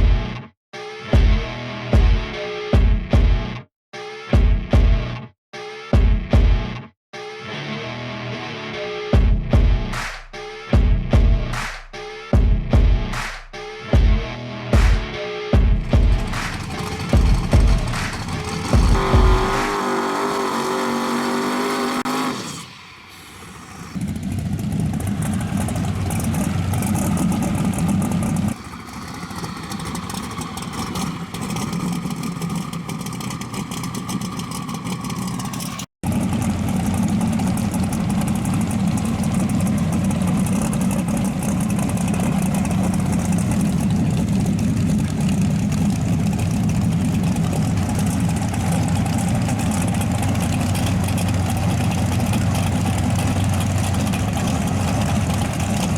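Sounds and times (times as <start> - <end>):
music: 0.0 - 16.6
race car engines running rough: 15.8 - 55.9.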